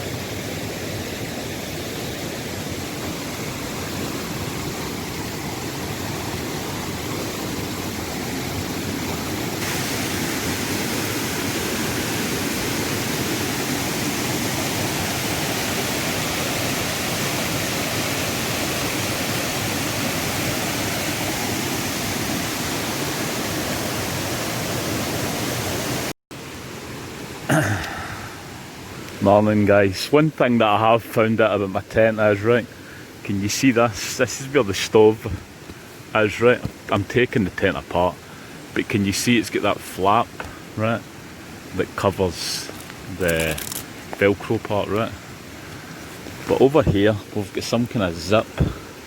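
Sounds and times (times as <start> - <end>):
fast-flowing stream rushing: 0.0 - 49.0.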